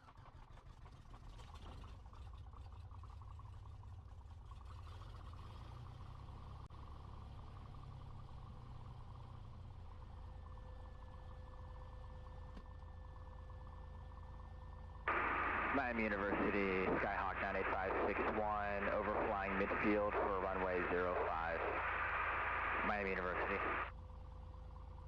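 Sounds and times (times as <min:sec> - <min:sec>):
faint steady tone: 0:06.6 - 0:25.0
aircraft engine idling: 0:06.9 - 0:25.0.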